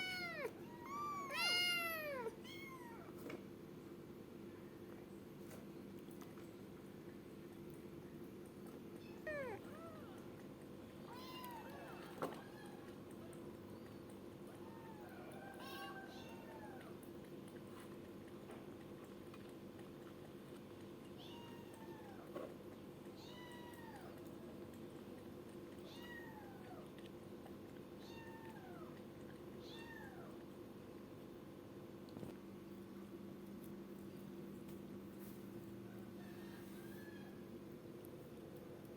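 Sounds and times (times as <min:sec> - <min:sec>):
kitten meowing: 0:00.0 - 0:03.1, 0:09.2 - 0:10.1.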